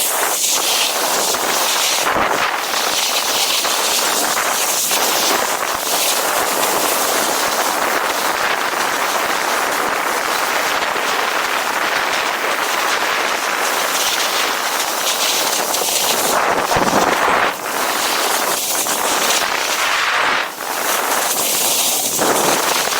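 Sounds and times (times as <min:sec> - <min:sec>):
snowboard sliding over snow: 0:15.3 - 0:22.9
wind rushing: 0:16.1 - 0:18.1.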